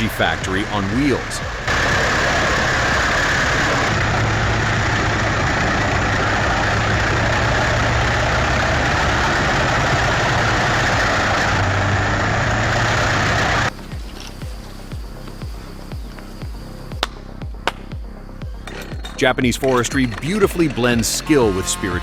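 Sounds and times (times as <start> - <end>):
wood chipper running: 0.0 - 14.0.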